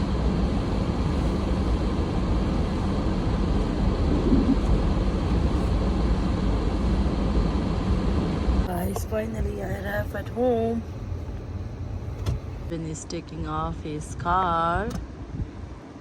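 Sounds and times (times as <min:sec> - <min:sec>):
car driving interior rumble: 0:00.0 - 0:12.7
faint steady hum: 0:00.0 - 0:16.0.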